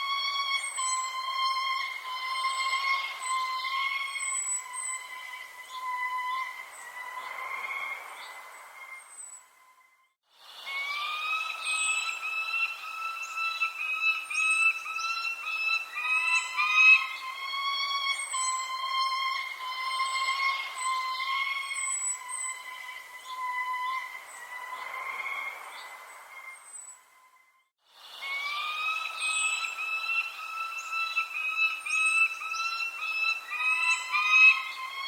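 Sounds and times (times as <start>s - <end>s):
whistle-like bird tones: 0.0s - 27.6s, 28.2s - 35.0s
bird chirps: 0.0s - 35.0s.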